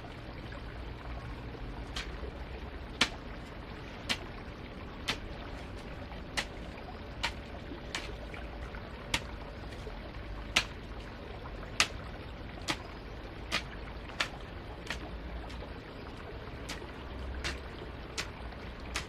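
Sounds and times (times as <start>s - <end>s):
low steady rumble: 0.0s - 19.0s
sharp taps: 10.6s - 10.8s.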